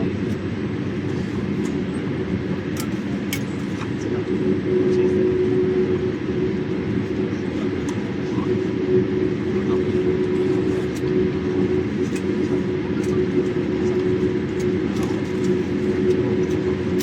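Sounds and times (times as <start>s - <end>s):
airliner cabin engine rumble: 0.0s - 17.0s
constant hum: 0.0s - 17.0s.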